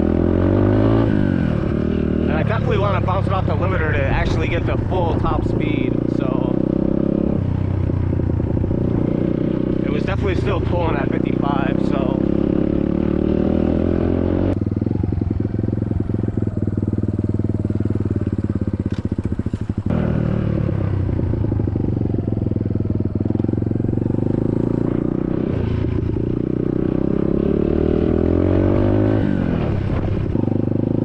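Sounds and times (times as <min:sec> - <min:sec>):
dirt bike engine: 0:00.0 - 0:31.0.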